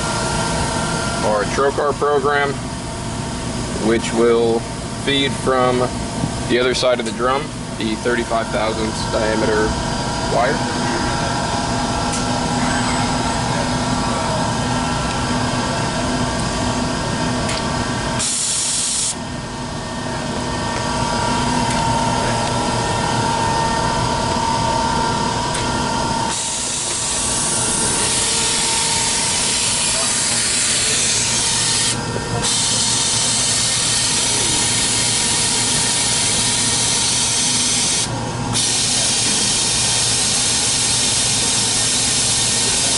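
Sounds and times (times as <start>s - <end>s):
machine hum: 0.0s - 42.9s
air hissing: 18.2s - 19.2s, 26.2s - 42.9s.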